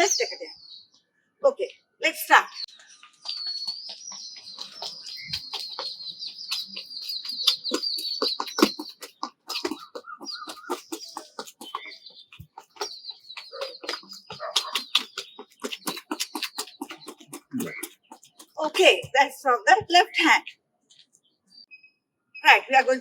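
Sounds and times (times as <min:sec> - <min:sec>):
feet tapping quickly: 0:03.0 - 0:20.3
low clucking call: 0:03.8 - 0:19.0.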